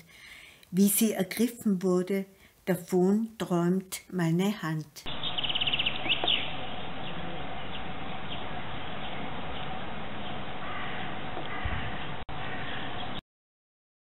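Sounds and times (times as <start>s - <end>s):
small birds chirping: 5.0s - 13.2s
short gliding bird calls: 5.1s - 13.0s.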